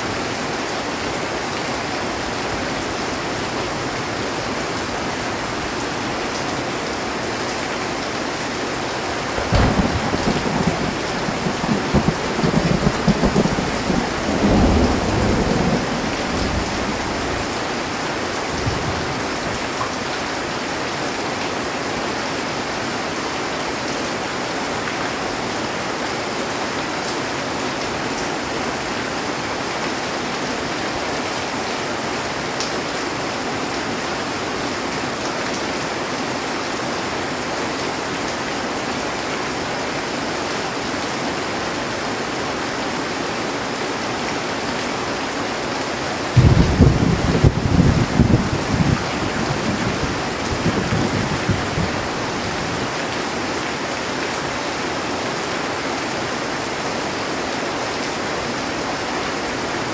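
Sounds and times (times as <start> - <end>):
heavy rain on a metal roof: 0.0 - 59.9
thunderclap rumble: 9.0 - 19.6, 46.4 - 53.0.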